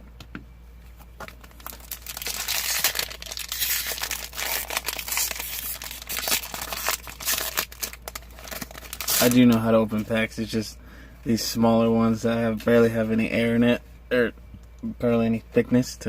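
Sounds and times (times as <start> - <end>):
foil wrapper crinkling and tearing: 1.2 - 9.7.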